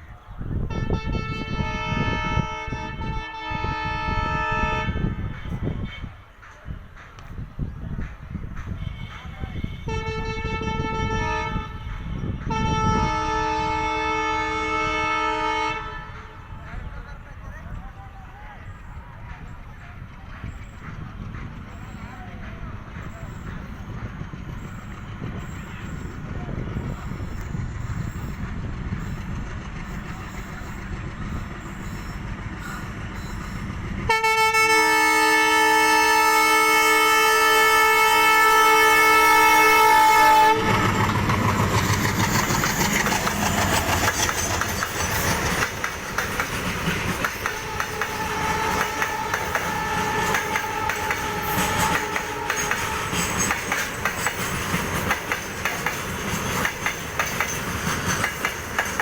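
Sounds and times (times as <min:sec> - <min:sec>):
low train rumble: 0:00.0 - 0:59.0
locomotive horn chord: 0:00.7 - 0:05.3, 0:08.9 - 0:16.6, 0:34.1 - 0:41.2, 0:47.4 - 0:53.4
train wheels clattering over rail joints: 0:40.8 - 0:59.0.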